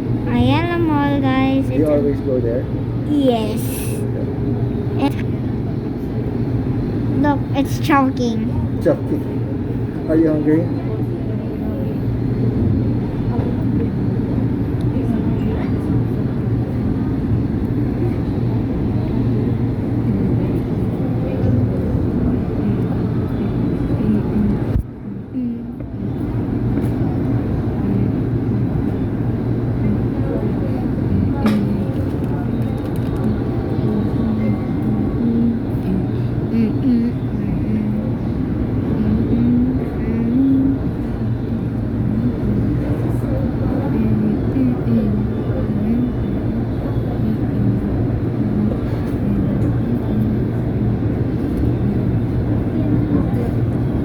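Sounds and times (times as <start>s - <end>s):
light-rail train rumble from inside: 0.0s - 54.0s
wavering low tone: 33.2s - 38.3s.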